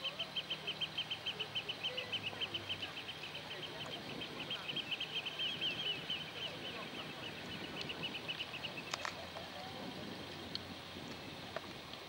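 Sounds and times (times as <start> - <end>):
bird calling with high piping notes: 0.0 - 9.2
outdoor background noise: 0.0 - 12.0.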